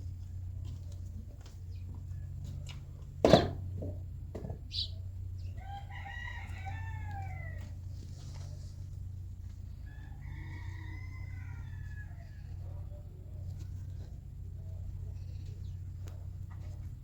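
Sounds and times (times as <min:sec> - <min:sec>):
steady low hum: 0:00.0 - 0:17.0
rooster crowing: 0:05.6 - 0:07.9, 0:09.8 - 0:12.8.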